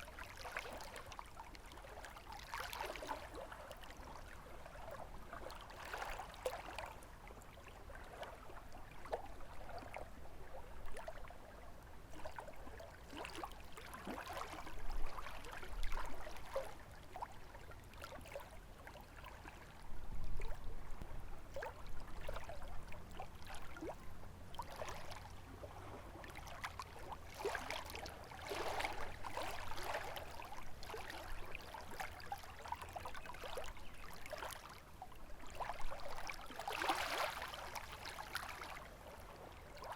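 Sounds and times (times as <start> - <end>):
lake waves lapping at shore: 0.0 - 20.8, 21.5 - 39.9.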